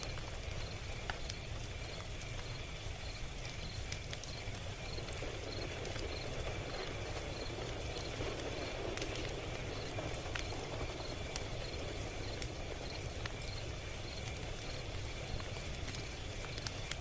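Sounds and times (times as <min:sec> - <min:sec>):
log fire crackling: 0:00.0 - 0:17.0.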